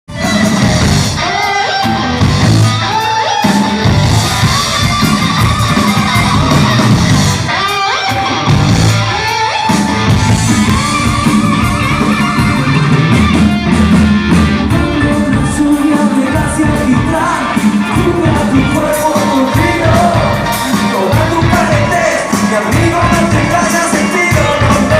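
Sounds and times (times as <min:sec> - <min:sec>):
rock band with guitar: 0:00.1 - 0:24.9
person singing: 0:14.6 - 0:24.9.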